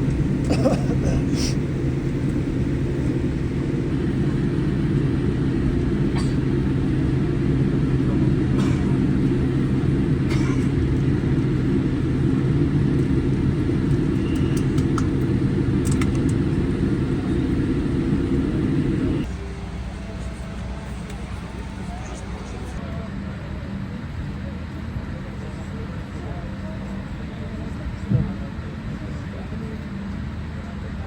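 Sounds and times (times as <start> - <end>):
airliner cabin rumble: 0.0 - 22.8
faint clicks: 13.9 - 16.4.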